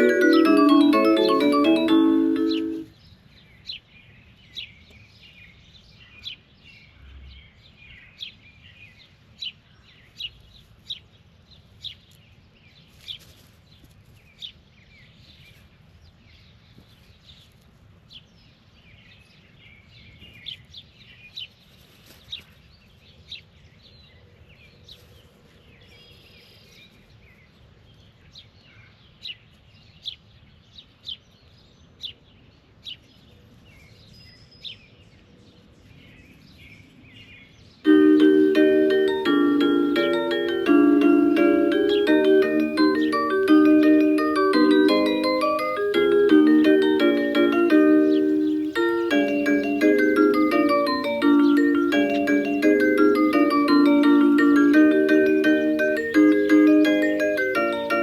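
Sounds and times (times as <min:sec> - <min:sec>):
bird chirping: 0:38.0 - 0:58.0.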